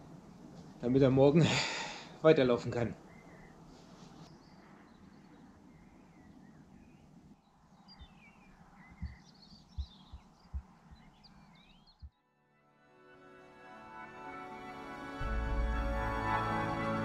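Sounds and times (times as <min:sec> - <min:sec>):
small birds chirping: 0:00.0 - 0:12.2
low thumps: 0:08.9 - 0:11.2.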